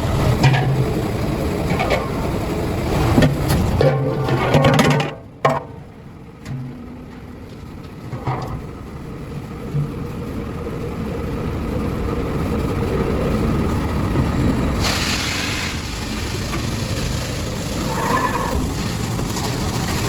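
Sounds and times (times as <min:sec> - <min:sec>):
motor running rumble: 0:00.0 - 0:20.0
short burst of hiss: 0:14.8 - 0:18.5.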